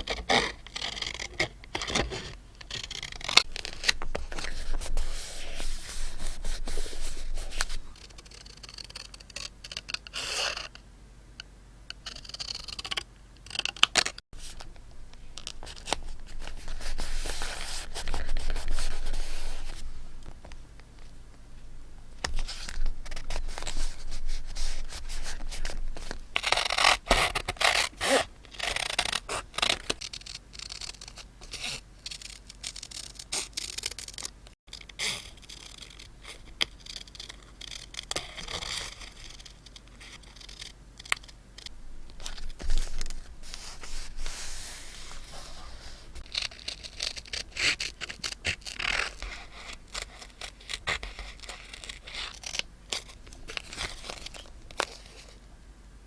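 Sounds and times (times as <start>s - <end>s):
paper scraping and crinkling: 0.0s - 8.3s, 15.4s - 20.5s, 22.2s - 30.1s, 42.1s - 55.4s.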